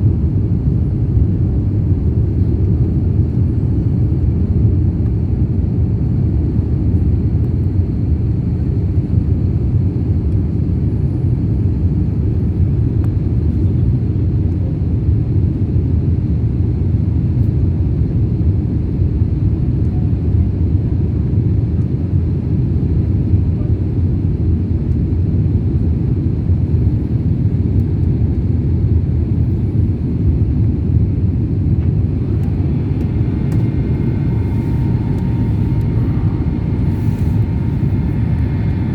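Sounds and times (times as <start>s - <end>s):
jet engines rumbling: 0.0s - 13.4s, 26.2s - 38.9s.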